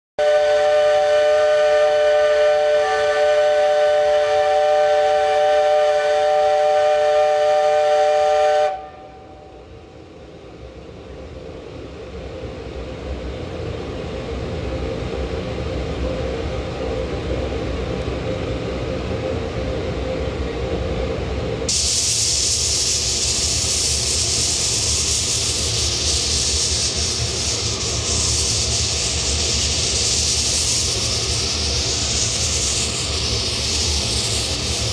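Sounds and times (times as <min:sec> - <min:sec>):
steam locomotive whistle: 0:00.2 - 0:09.6
steam hiss: 0:21.7 - 0:34.9.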